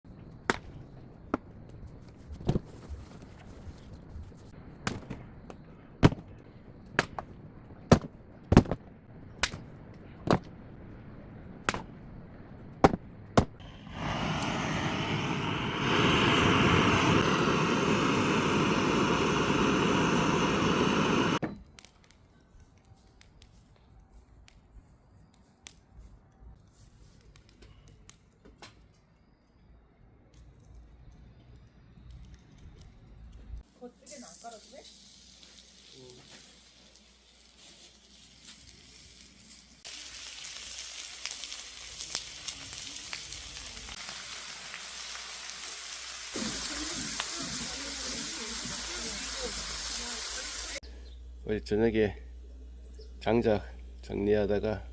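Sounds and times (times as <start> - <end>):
loud steady machine noise: 13.6 - 21.4.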